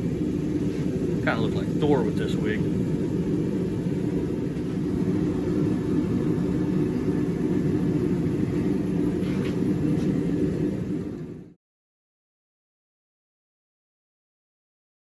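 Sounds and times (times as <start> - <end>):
steady low rumble: 0.0 - 11.6.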